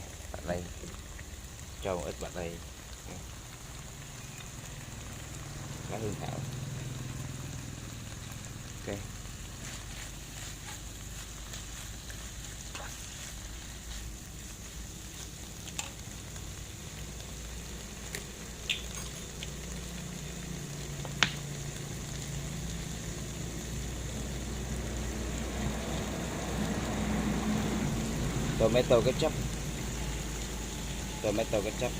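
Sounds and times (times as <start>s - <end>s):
food sizzling in a pan: 0.0s - 31.9s.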